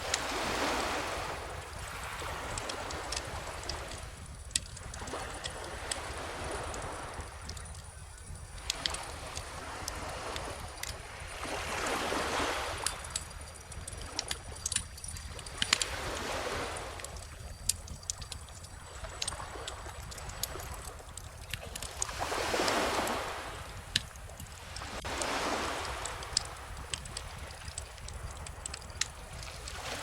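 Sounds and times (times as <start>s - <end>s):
bonfire crackling: 12.8s - 15.9s, 16.7s - 30.0s
ocean waves washing in: 21.8s - 30.0s.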